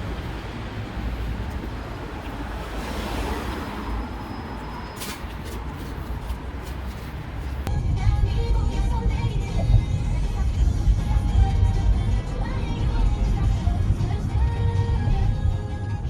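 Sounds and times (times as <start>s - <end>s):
steady low rumble: 7.3s - 16.0s.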